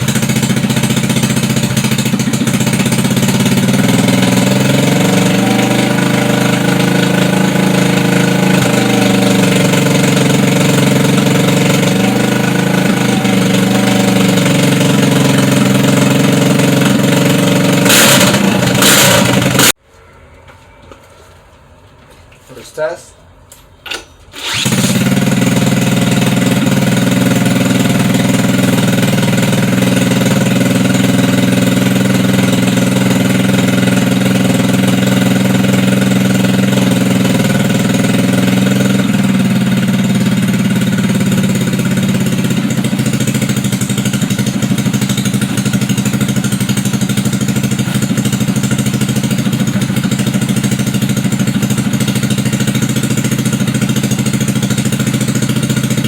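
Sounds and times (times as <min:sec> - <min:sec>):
scooter engine starting and running: 0:00.0 - 0:19.8, 0:23.9 - 0:56.0.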